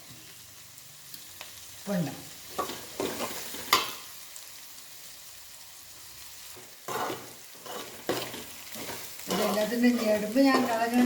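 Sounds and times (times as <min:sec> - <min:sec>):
chillies sizzling in hot oil: 0:00.0 - 0:11.0.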